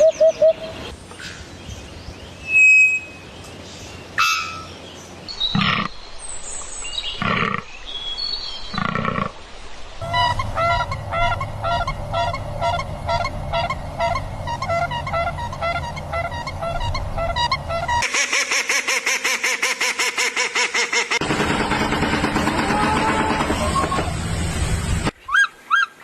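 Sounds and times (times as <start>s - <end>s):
steady low hum: 10.0s - 18.0s.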